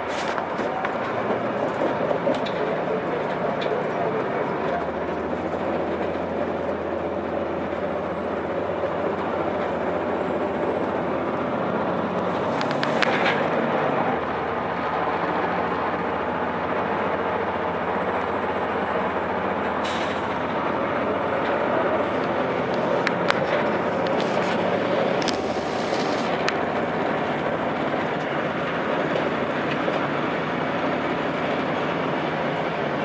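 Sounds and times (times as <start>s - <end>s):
diesel bus engine running: 0.0s - 33.0s
air brakes hissing: 19.8s - 21.0s.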